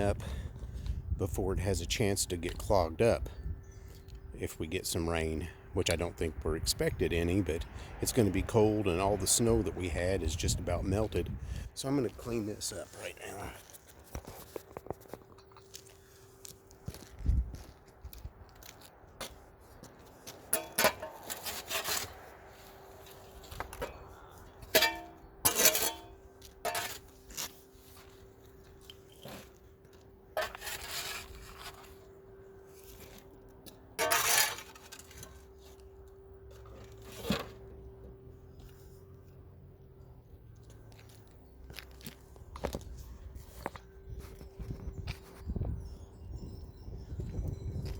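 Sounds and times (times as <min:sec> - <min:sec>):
debris scraping and crunching: 0:08.1 - 0:37.8.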